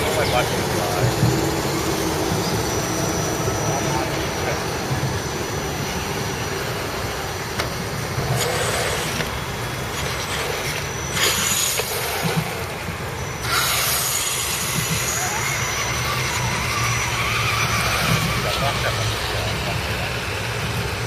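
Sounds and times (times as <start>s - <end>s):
electric motors high whine: 0.0s - 21.0s.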